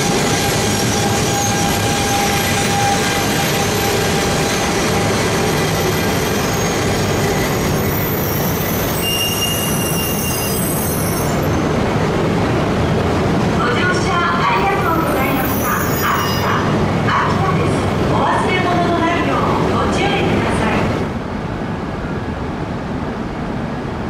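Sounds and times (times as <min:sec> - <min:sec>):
train wheels rumbling: 0:00.0 - 0:22.0
high thin wheel squeals: 0:00.2 - 0:11.6, 0:15.1 - 0:16.6.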